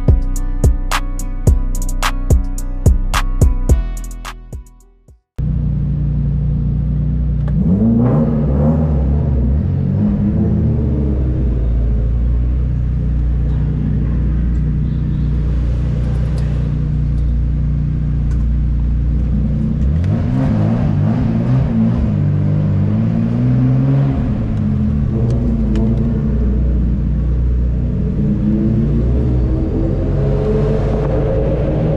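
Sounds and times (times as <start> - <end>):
car engine running and revving: 5.4 - 31.9.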